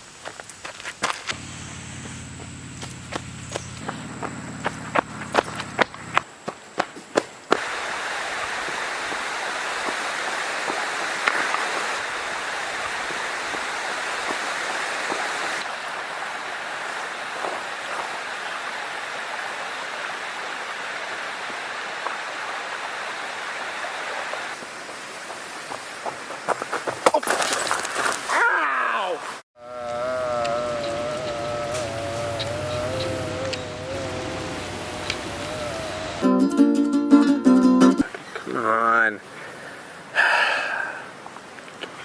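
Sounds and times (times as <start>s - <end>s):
flowing water rushing: 7.6s - 25.0s, 32.4s - 36.9s.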